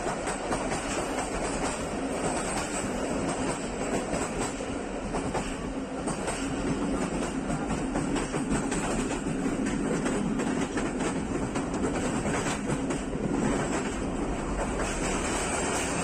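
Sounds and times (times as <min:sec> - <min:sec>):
train running noise on board: 0:00.0 - 0:16.0
wheels clicking on rails: 0:00.0 - 0:16.0.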